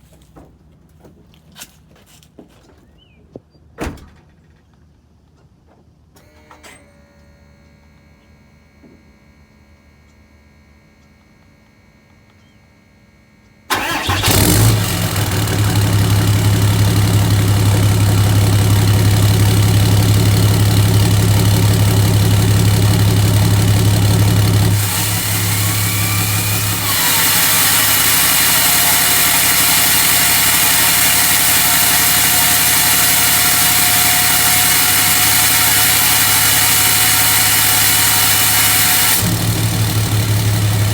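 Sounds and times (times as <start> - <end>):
diesel engine idling: 10.5 - 40.9
diesel engine cranking and starting: 11.0 - 40.9
exhaust brake hiss: 13.7 - 19.4.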